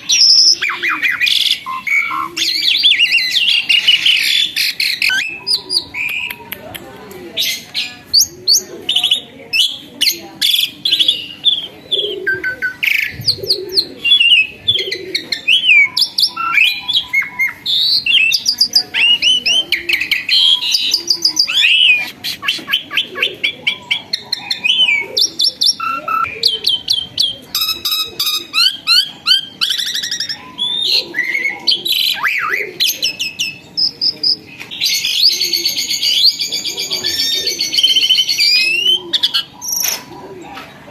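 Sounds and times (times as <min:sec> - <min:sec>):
starling singing: 0:00.0 - 0:06.8, 0:07.4 - 0:40.1.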